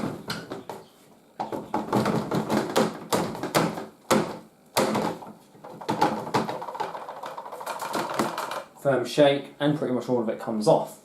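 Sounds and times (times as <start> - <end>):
sharp knocks on plastic: 1.4 - 7.0
plastic filter rattling: 1.4 - 8.7.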